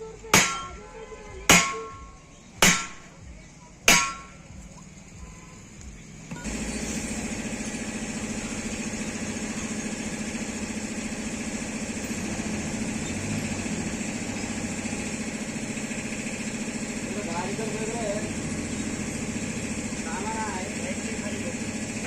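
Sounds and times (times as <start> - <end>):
engine humming and hissing: 0.0 - 22.0.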